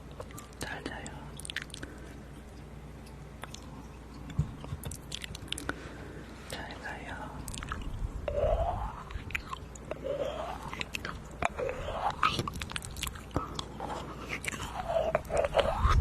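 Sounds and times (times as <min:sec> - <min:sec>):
wet mouth clicks and smacks: 0:01.4 - 0:01.9, 0:03.0 - 0:05.8, 0:10.7 - 0:11.6, 0:12.2 - 0:13.7.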